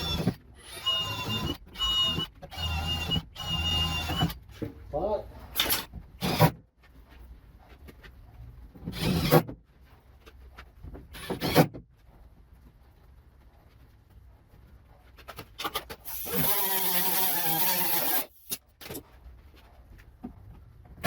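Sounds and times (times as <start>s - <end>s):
power tool motor whining: 16.1s - 18.5s.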